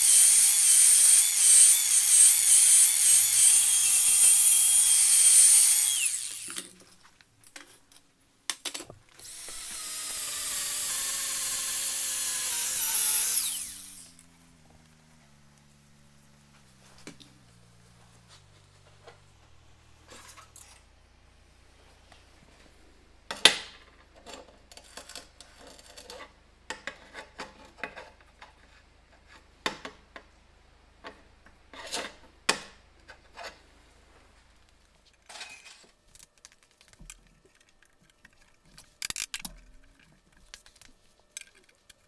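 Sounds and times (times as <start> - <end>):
metal tools clinking and knocking: 37.2 - 40.5.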